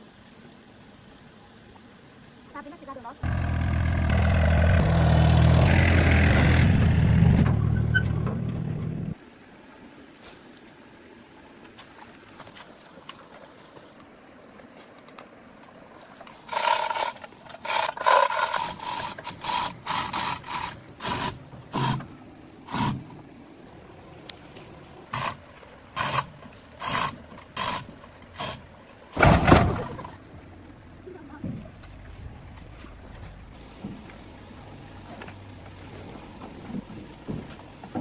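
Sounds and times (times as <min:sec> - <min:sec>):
hand tool scraping: 0:16.0 - 0:23.6, 0:24.5 - 0:30.0.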